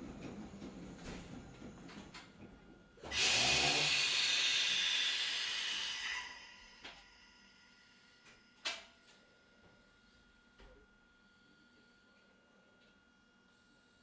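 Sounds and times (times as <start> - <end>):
train running rumble: 0.0 - 3.6
compressed air hissing: 3.1 - 6.4.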